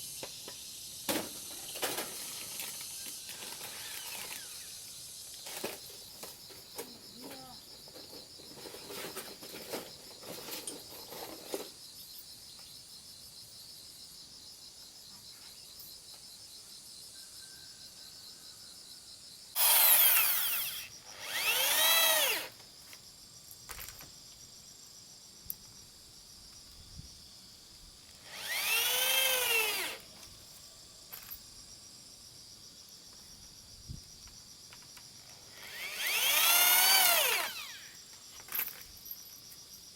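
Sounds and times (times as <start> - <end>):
power drill running: 3.5 - 4.7, 19.6 - 22.5, 28.2 - 30.0, 35.4 - 38.0.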